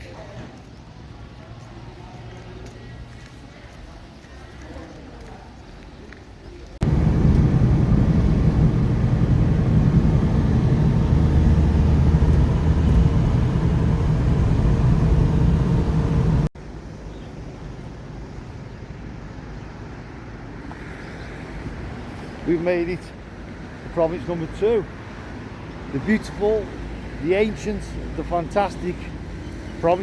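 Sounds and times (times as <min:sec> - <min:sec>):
vehicle engine low rumble: 0:06.8 - 0:16.6, 0:26.7 - 0:30.0
faint steady hum: 0:06.8 - 0:18.9.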